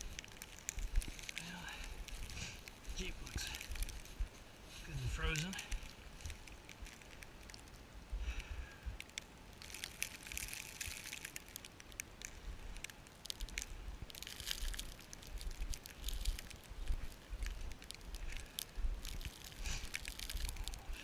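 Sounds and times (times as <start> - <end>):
footsteps crunching snow: 0.0 - 7.7, 12.3 - 21.0.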